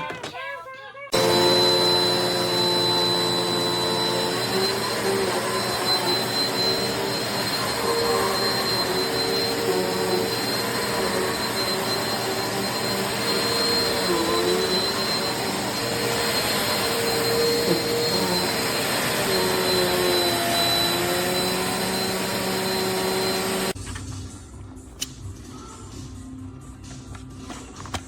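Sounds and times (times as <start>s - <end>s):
vacuum cleaner running: 1.1s - 23.8s.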